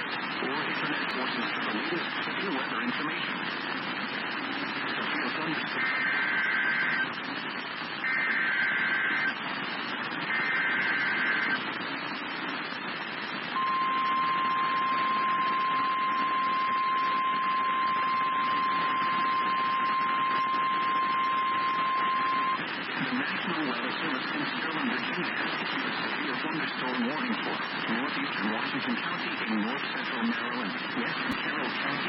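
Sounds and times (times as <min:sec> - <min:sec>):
radio static: 0:00.0 - 0:32.0
warbling digital header tones: 0:05.8 - 0:07.1, 0:08.0 - 0:09.4, 0:10.3 - 0:11.6, 0:13.6 - 0:22.6
steady alarm tone: 0:05.8 - 0:07.2, 0:08.0 - 0:09.4, 0:10.3 - 0:11.6, 0:13.5 - 0:22.6.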